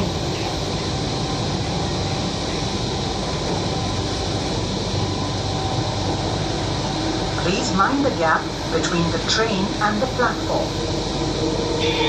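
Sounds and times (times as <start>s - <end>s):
train carriage rumble and hiss: 0.0s - 12.0s.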